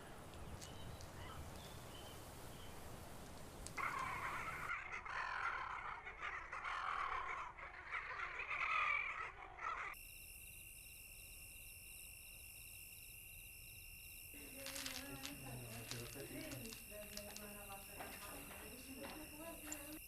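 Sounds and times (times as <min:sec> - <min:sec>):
birds cawing: 0:03.8 - 0:10.0.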